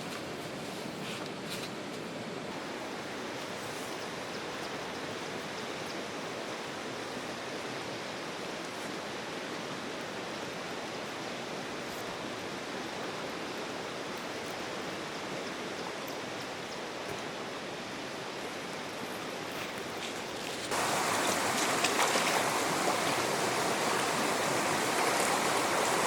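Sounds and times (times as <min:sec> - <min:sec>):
water rushing: 0:20.6 - 0:26.0.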